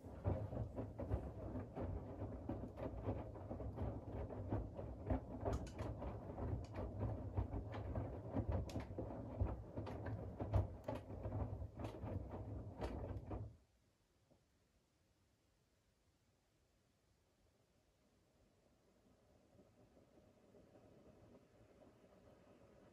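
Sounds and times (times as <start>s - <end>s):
laundry and water churning: 0.0s - 13.6s
washing machine motor hum: 0.0s - 13.6s.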